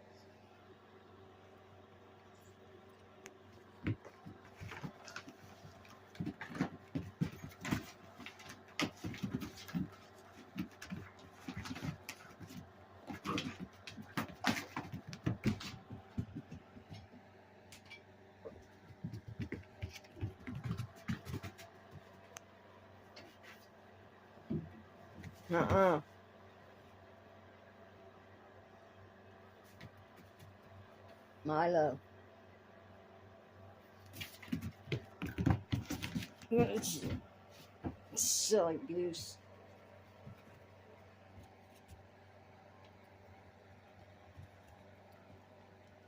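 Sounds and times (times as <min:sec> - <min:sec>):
puppy playing with clicks and scuffles: 0:03.2 - 0:22.4, 0:33.9 - 0:42.1.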